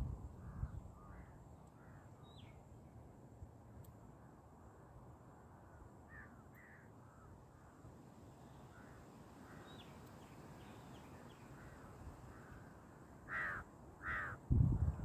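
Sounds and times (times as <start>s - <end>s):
harsh crow-like caw: 0.4s - 2.1s, 6.1s - 7.8s, 8.7s - 9.8s, 11.6s - 14.5s
faint bird calls: 0.4s - 2.6s, 5.6s - 14.5s.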